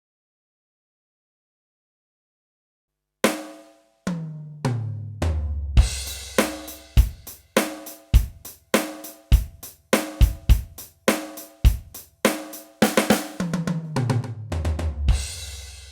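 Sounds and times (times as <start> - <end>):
crash cymbal with kick drum: 3.3 - 3.8, 5.8 - 13.5, 15.1 - 15.9
tom drum fill: 5.2 - 15.9
snare drum hit: 5.8 - 9.2, 10.0 - 13.6
rock drum beat: 5.8 - 15.9.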